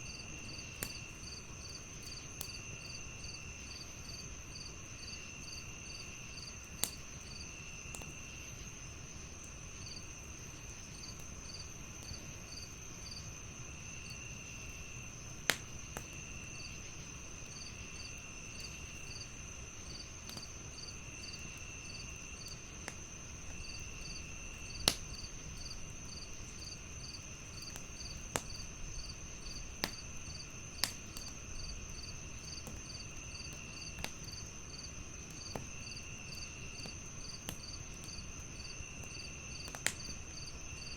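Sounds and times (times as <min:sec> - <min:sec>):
crickets chirping: 0:00.0 - 0:40.9
wood fire crackling: 0:06.2 - 0:40.9
sharp fire pops: 0:06.8 - 0:07.0, 0:15.4 - 0:16.2, 0:24.6 - 0:25.7, 0:27.6 - 0:31.7, 0:36.8 - 0:38.2, 0:39.0 - 0:40.2.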